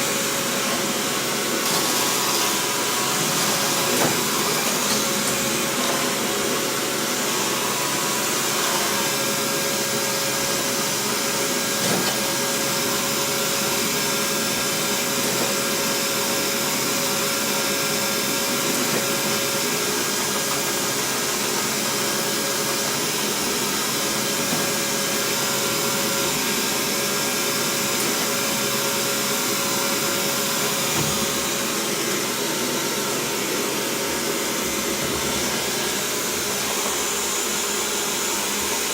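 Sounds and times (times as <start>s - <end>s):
robot vacuum whirring: 0.0s - 14.0s.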